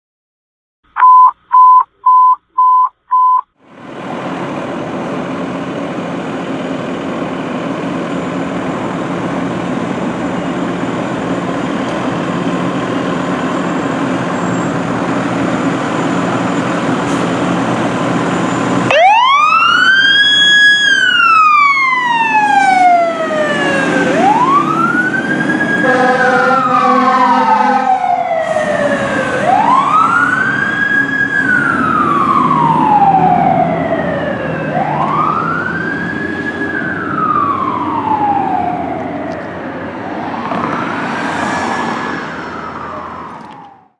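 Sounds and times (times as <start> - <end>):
short high beeps: 1.0 - 3.4
fire engine diesel engine: 3.6 - 43.9
siren wailing: 18.8 - 43.9.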